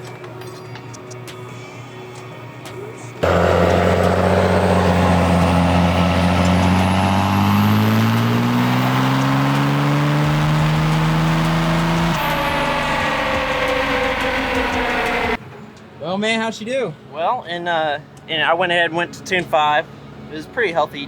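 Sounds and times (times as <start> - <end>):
diesel engine under full load: 3.2 - 15.4.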